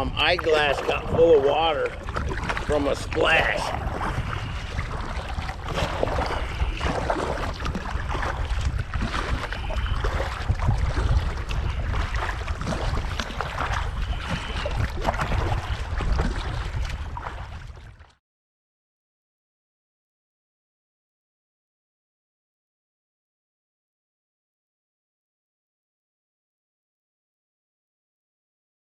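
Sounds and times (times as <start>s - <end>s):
wind buffeting microphone: 0.0s - 18.0s
paddle strokes splashing: 0.0s - 18.1s
water sloshing against hull: 0.0s - 18.2s.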